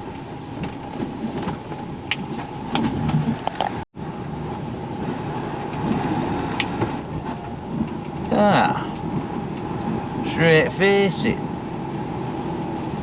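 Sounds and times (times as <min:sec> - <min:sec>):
diesel engine rumbling: 0:00.0 - 0:13.0
knocks and rattles in cab: 0:00.5 - 0:03.8.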